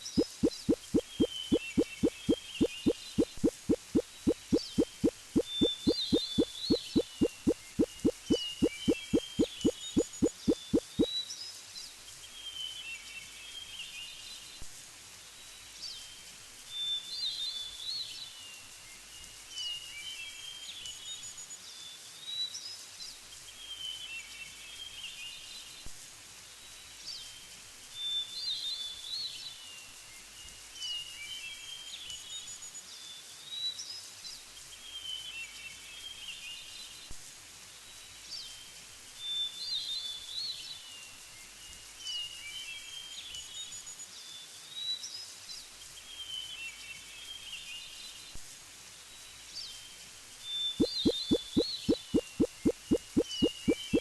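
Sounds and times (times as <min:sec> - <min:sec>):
birds chirping: 0:00.0 - 0:11.1, 0:50.8 - 0:54.0.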